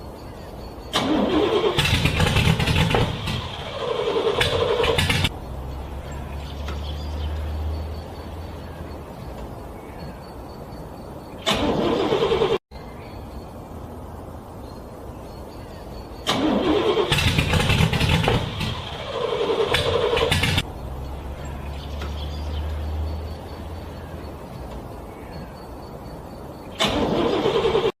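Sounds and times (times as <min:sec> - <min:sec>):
car engine cranking: 0:00.9 - 0:09.5, 0:11.4 - 0:12.6, 0:16.2 - 0:24.9, 0:26.8 - 0:28.0.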